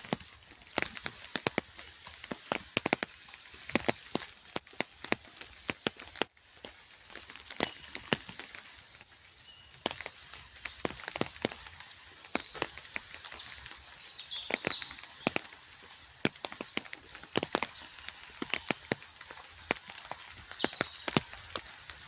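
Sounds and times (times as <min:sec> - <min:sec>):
rain falling: 0:00.0 - 0:22.0
raindrops ticking: 0:00.0 - 0:22.0
bird chirps: 0:02.4 - 0:04.3, 0:07.5 - 0:22.0.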